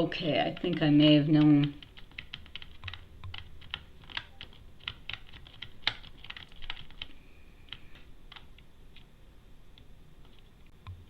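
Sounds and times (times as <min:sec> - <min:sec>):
typing on computer keyboard: 0:00.3 - 0:07.1.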